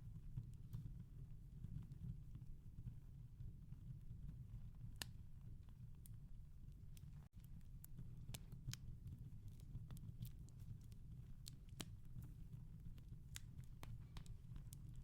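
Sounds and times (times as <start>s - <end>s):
wood fire crackling: 4.9s - 15.0s.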